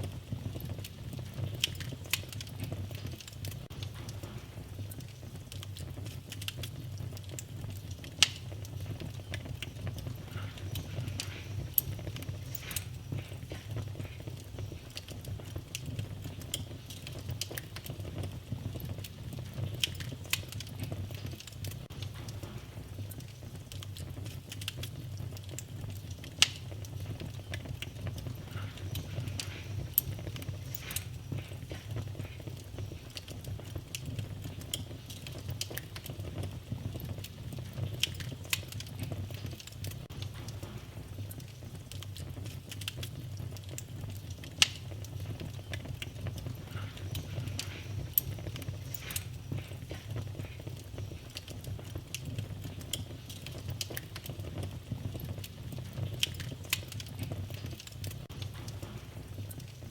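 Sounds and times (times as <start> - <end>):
fireplace fire crackling: 0.0 - 59.9
sharp pop of fire: 1.5 - 8.6.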